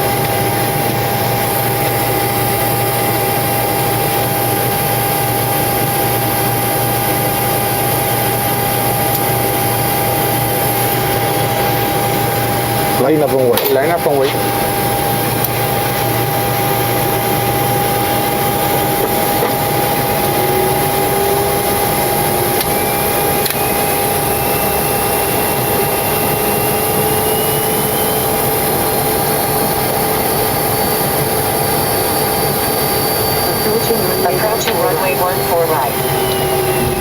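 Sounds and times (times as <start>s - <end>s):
jet engines idling: 0.0s - 37.0s
steady whine: 0.0s - 37.0s
faint rising whine: 33.4s - 37.0s.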